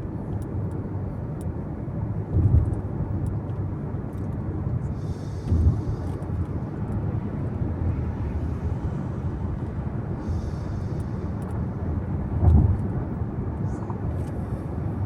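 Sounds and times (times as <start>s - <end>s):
car road noise: 0.0s - 15.0s
low thuds: 2.3s - 2.9s, 12.3s - 13.0s.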